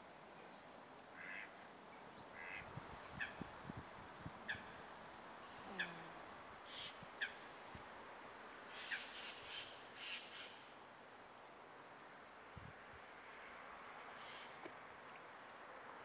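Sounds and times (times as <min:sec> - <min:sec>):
faint background hiss: 0:00.0 - 0:16.0.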